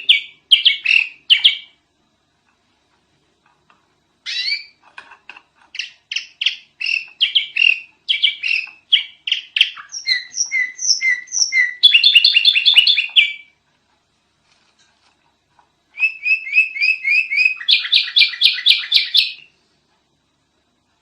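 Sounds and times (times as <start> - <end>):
bird chirping: 0.0 - 1.8, 4.2 - 4.8, 5.7 - 13.6, 15.9 - 19.6.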